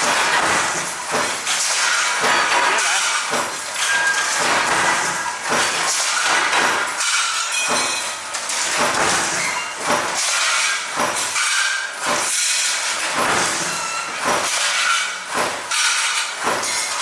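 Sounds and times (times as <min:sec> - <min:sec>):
metallic clanks and clinks: 0:00.0 - 0:17.0
metalworking machinery clatter: 0:00.0 - 0:17.0.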